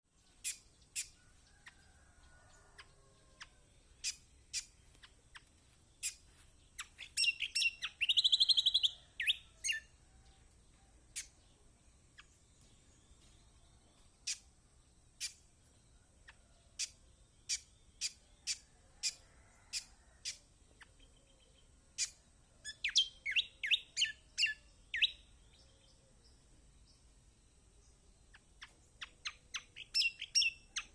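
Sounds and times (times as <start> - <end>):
bird chirping and chattering: 0.2 - 1.8, 2.8 - 9.9, 11.1 - 11.5, 14.2 - 14.5, 16.2 - 25.3, 28.2 - 30.9.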